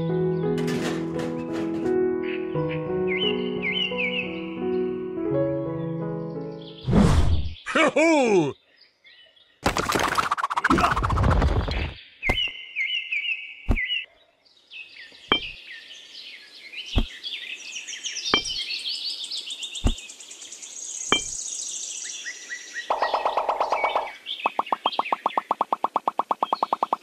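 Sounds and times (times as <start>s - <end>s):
birds chirping: 0.3s - 5.0s, 5.8s - 27.0s
sharp knocks: 18.4s - 18.6s.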